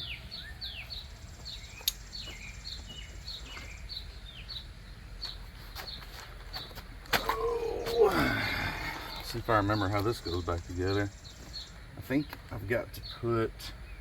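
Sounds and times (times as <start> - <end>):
small bird chirping: 0.0 - 7.0, 7.6 - 14.0
sharp click: 1.8 - 2.0.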